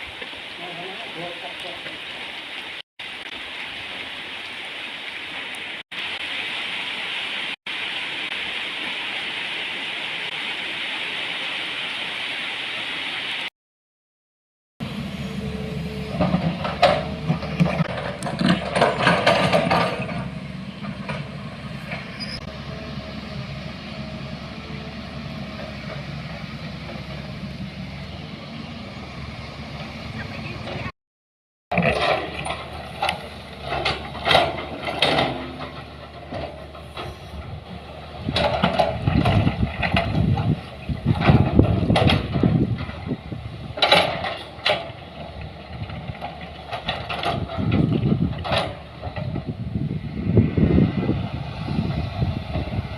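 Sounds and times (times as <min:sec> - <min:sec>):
heavy vehicle engine running: 0:14.8 - 0:30.9, 0:31.8 - 0:52.9
metal clanks and knocks: 0:16.1 - 0:22.2, 0:31.7 - 0:37.5, 0:38.2 - 0:43.1, 0:43.8 - 0:49.5
rattling and knocking: 0:16.2 - 0:22.1.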